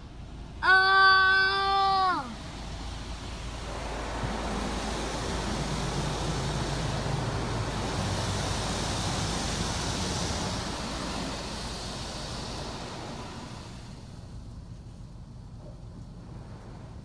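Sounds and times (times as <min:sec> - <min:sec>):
car wash machinery rushing hiss: 0:00.0 - 0:17.0.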